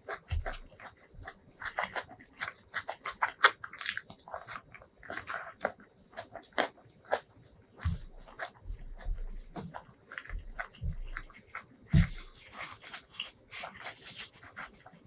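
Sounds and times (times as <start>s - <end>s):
wet chewing and lip smacks: 0.0s - 14.9s.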